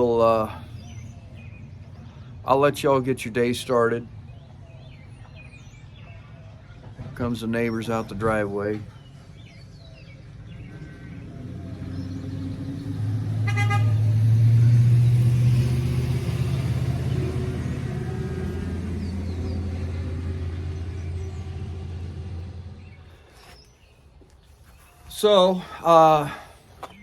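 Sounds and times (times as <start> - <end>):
vehicle driving past: 9.1 - 23.6
short horn toot: 13.4 - 14.1.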